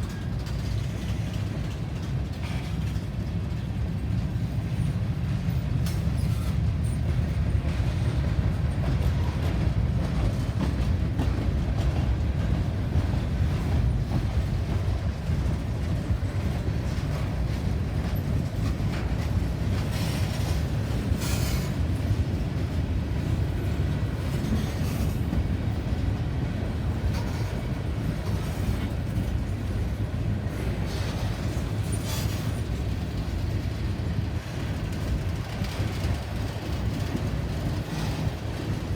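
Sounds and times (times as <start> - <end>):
train cars rumbling past: 0.0 - 38.9.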